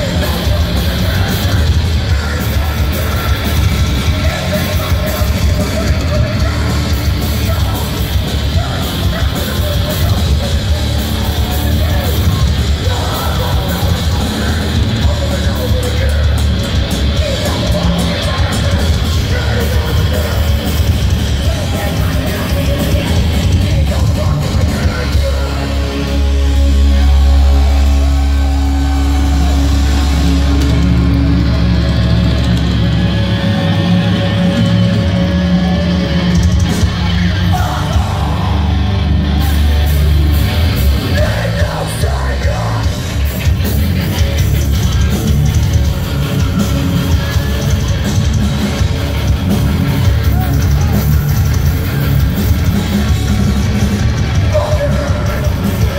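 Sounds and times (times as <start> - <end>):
live heavy metal band: 0.0 - 55.9
person yelling vocals: 37.3 - 39.6.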